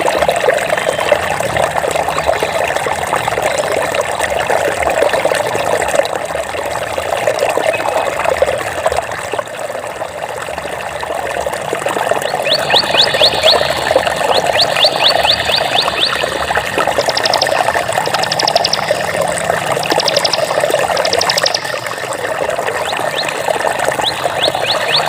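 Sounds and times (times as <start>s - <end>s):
water trickling and babbling: 0.0s - 25.0s
rapid high trill: 12.6s - 22.4s.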